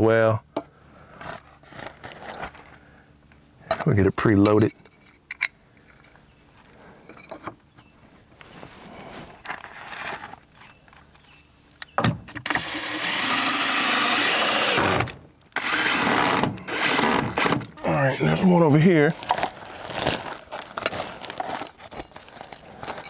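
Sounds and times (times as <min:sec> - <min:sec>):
cordless drill driving screws: 0:12.4 - 0:17.8
handling noise: 0:14.8 - 0:23.0.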